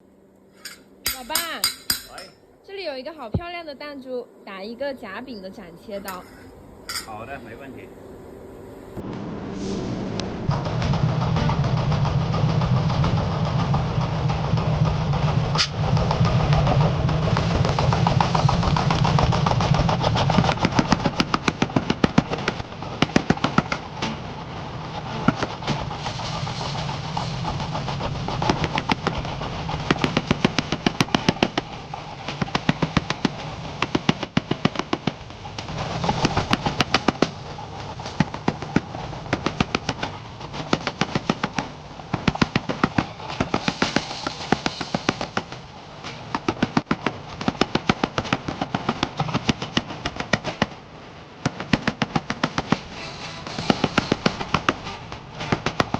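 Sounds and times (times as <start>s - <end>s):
steady low hum: 0.0s - 43.5s
hammer strikes on steel: 0.6s - 2.4s, 6.0s - 7.2s.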